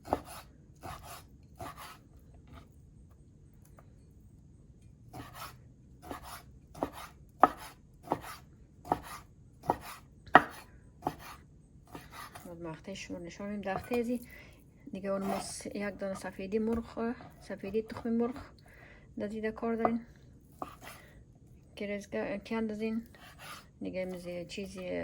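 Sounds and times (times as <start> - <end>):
knife slicing raw meat: 0.0 - 2.0, 5.1 - 12.5, 15.2 - 15.7, 20.5 - 21.0, 23.1 - 24.8.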